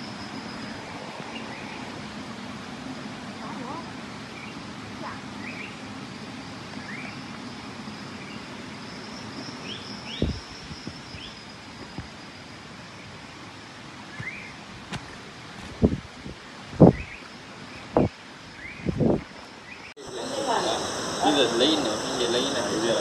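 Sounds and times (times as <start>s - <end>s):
steady hiss: 0.0s - 23.0s
bird chirping: 8.2s - 11.6s
faint high buzz: 20.0s - 23.0s.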